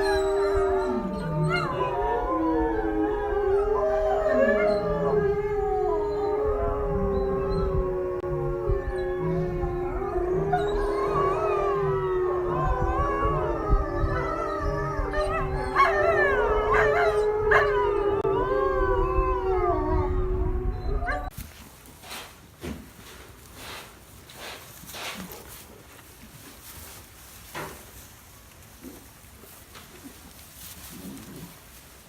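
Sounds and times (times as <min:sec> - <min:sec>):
wolves yipping: 0:00.0 - 0:07.9, 0:08.9 - 0:18.3, 0:20.6 - 0:21.4
wolves howling in chorus: 0:00.0 - 0:21.4
faint rustling: 0:21.3 - 0:32.0.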